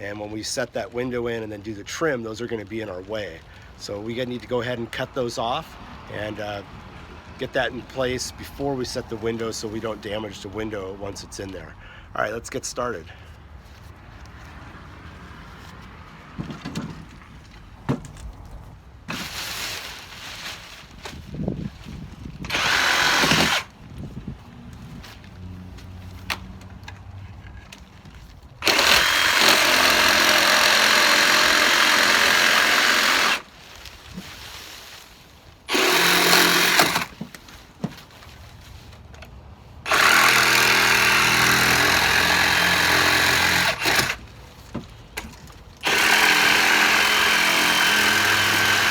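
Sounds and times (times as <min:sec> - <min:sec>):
power saw cutting wood: 0:22.5 - 0:23.7, 0:28.6 - 0:33.5, 0:35.7 - 0:37.2, 0:39.9 - 0:44.3, 0:45.8 - 0:48.9.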